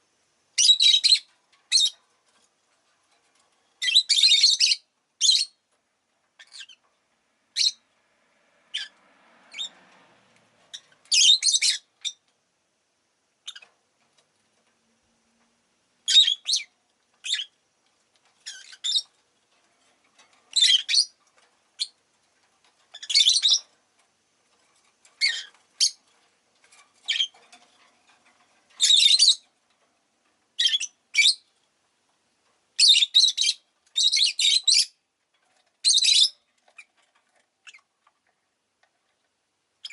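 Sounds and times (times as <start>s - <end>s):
lovebirds shrill chirps: 0.6s - 2.0s, 3.8s - 5.6s, 6.4s - 6.8s, 7.6s - 7.8s, 8.7s - 9.7s, 10.7s - 12.2s, 13.4s - 13.7s, 16.0s - 17.6s, 18.4s - 19.1s, 20.5s - 21.2s, 21.8s - 22.0s, 22.9s - 23.7s, 25.1s - 26.0s, 27.0s - 27.4s, 28.8s - 29.5s, 30.6s - 31.5s, 32.8s - 35.0s, 35.8s - 37.0s, 37.6s - 37.9s.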